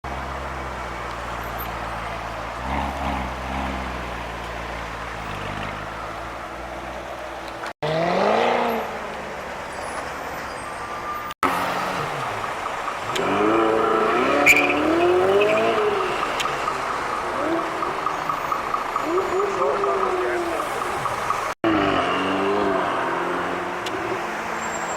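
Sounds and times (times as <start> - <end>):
car engine revving: 7.8 - 9.4, 11.4 - 24.9.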